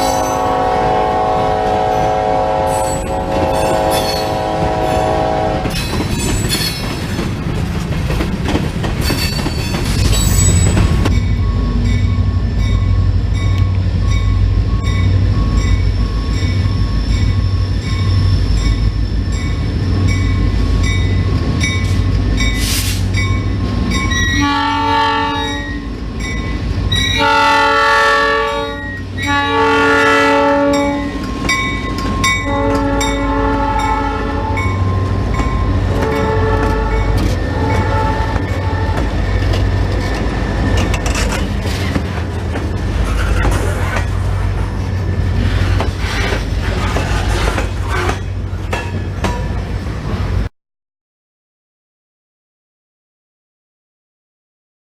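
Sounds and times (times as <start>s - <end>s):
locomotive horn blasts: 0.0s - 5.8s, 24.3s - 25.8s, 27.1s - 31.2s, 32.2s - 39.5s
train cars rolling and clattering: 1.6s - 24.4s, 30.8s - 50.4s
locomotive engine drone: 10.0s - 24.5s, 25.3s - 50.5s.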